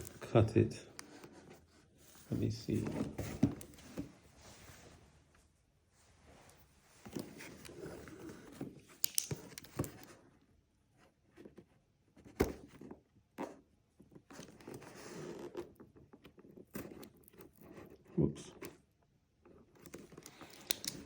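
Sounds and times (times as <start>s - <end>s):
cardboard box rustling: 1.1s - 4.9s.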